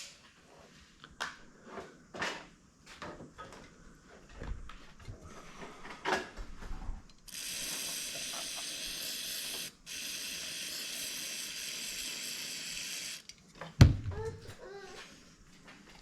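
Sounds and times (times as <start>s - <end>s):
compressed air hissing: 7.3s - 13.3s.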